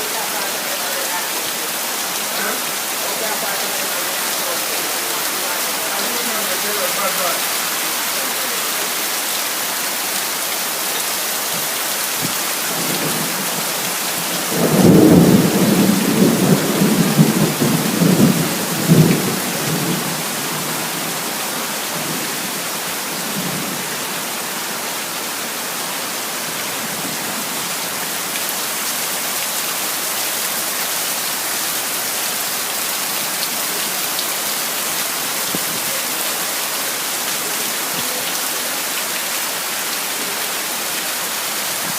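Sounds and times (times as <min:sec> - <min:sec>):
heavy rain falling: 0:00.0 - 0:41.9
thunder rumbling: 0:12.7 - 0:21.0.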